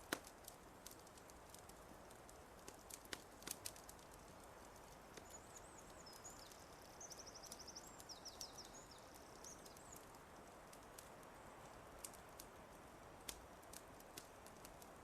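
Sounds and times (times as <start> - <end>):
fireplace crackles: 0.0 - 15.0
songbird chirping and trilling: 5.1 - 10.2.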